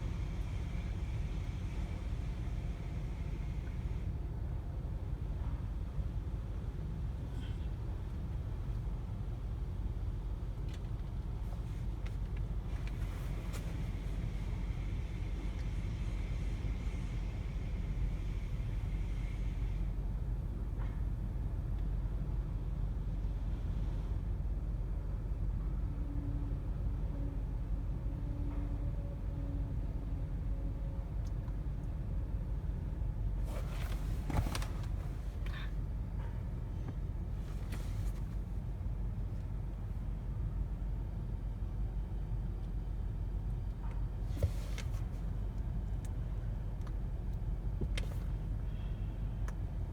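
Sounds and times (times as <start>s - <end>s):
car wash low rumble: 0.0s - 25.4s, 29.6s - 49.9s
car wash rumbling: 33.4s - 35.6s.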